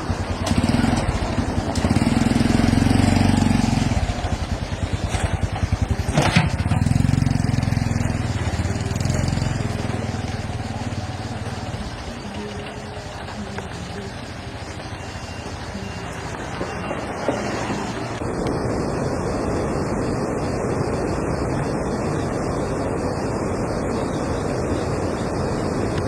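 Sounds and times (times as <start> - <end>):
vehicle engine speeding up: 0.0 - 12.4.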